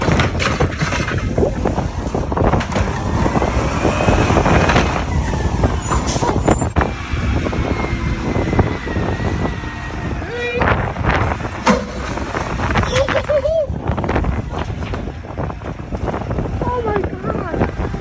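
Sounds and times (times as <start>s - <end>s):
clanks and knocks: 0.0s - 3.8s, 11.1s - 13.3s, 14.0s - 15.6s
garbage truck rumbling: 0.0s - 18.0s.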